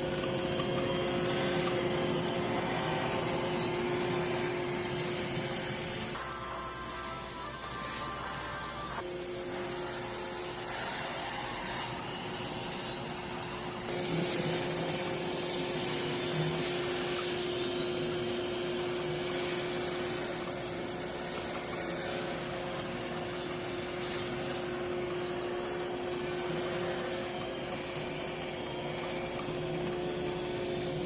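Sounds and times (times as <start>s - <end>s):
robot vacuum running: 0.0s - 6.3s, 9.0s - 31.0s.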